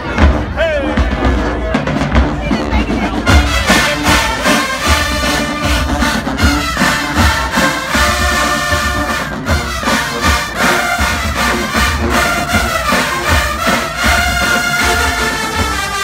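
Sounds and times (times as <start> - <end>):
bass drum beats: 0.0 - 16.0
brass section playing chords: 3.2 - 16.0.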